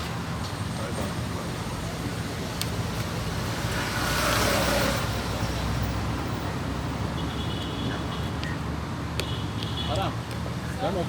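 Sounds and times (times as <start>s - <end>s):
street traffic rumble: 0.0s - 11.0s
vehicle passing: 1.7s - 7.2s.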